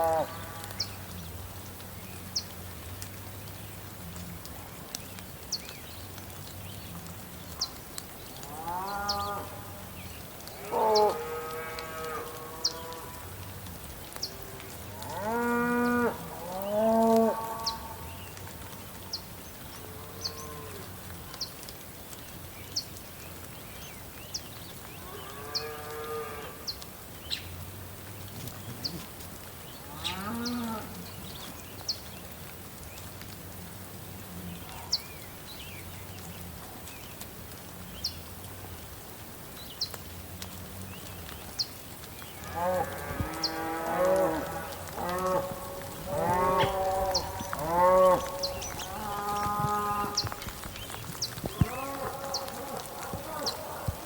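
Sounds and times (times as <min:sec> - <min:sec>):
animal calls: 0:42.4 - 0:54.0.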